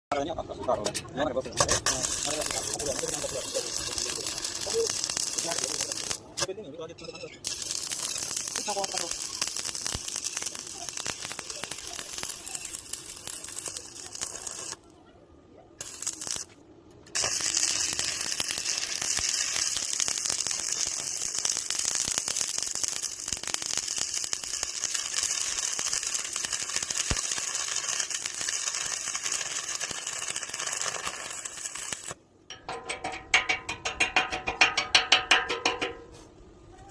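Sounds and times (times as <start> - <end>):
welding arc crackling and sizzling: 1.6 - 6.6, 7.4 - 14.9, 15.8 - 32.2.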